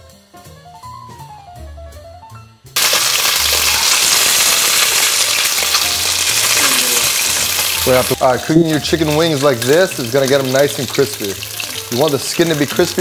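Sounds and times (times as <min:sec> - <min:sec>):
quiet background music: 0:00.0 - 0:13.0
chicken searing in hot oil: 0:02.8 - 0:13.0.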